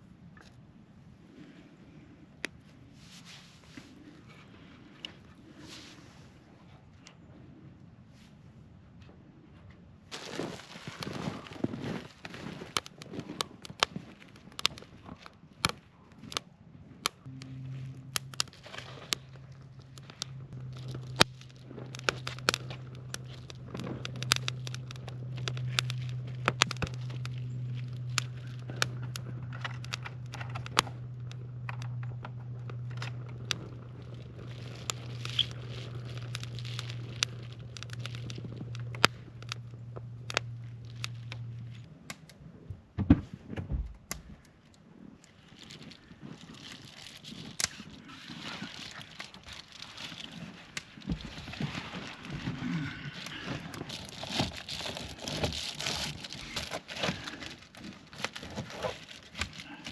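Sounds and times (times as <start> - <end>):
wood fire crackling and popping: 10.1 - 42.4, 43.8 - 59.9
steady low hum: 15.3 - 59.9.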